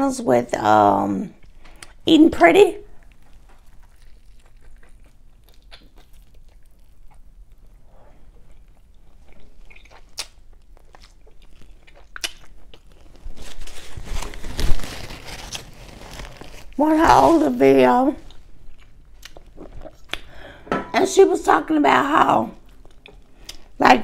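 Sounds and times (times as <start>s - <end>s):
crunching crackles: 1.2s - 20.3s
person chewing chicken: 2.9s - 13.4s, 18.3s - 20.4s, 22.6s - 23.8s.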